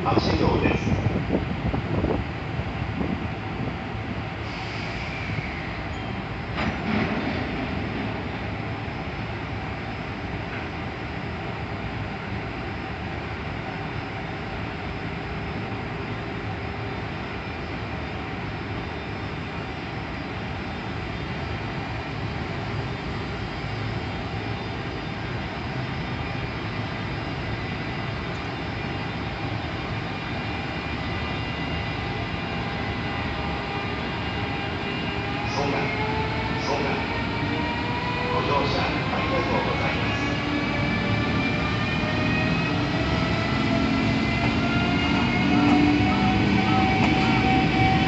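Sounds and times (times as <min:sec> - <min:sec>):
electric train rolling rumble: 0:00.0 - 0:48.0.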